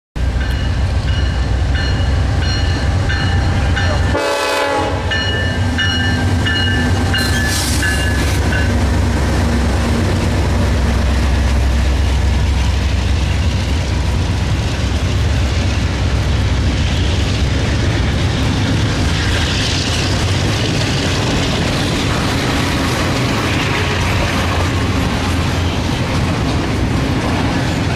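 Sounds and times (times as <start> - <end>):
train rumble and wheel clatter: 0.2 - 27.9
train horn: 3.9 - 5.6.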